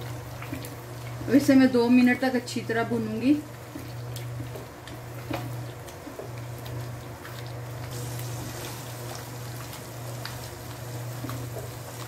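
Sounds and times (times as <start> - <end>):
gravy bubbling and sizzling: 0.0 - 12.0
spatula stirring: 0.0 - 12.0
oil spatter ticks: 3.6 - 12.0.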